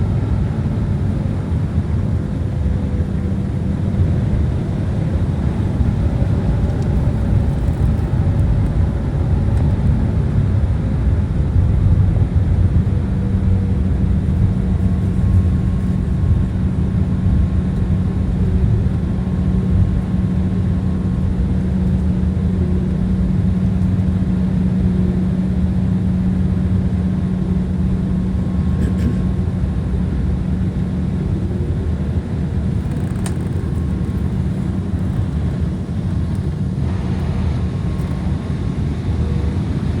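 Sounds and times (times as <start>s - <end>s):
airliner cabin rumble: 0.0s - 40.0s
steady low hum: 0.0s - 40.0s.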